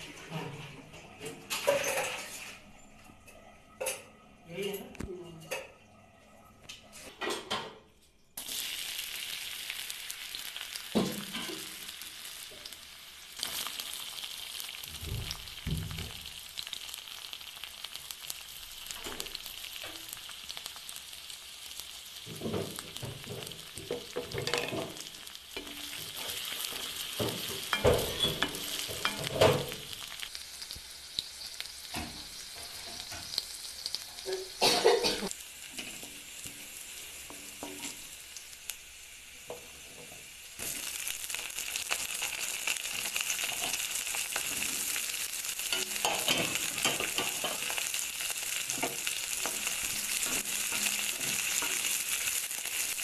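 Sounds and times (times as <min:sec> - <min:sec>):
paneer sizzling in oil: 0:08.4 - 0:53.0
stirring knocks and scrapes: 0:22.3 - 0:29.8.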